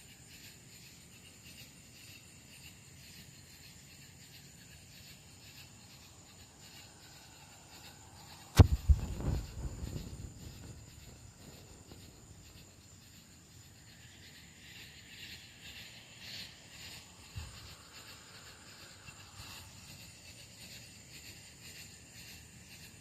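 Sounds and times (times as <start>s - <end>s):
crickets chirping: 0.0s - 23.0s
sharp knock: 8.6s - 10.7s
soft thump: 8.6s - 11.1s.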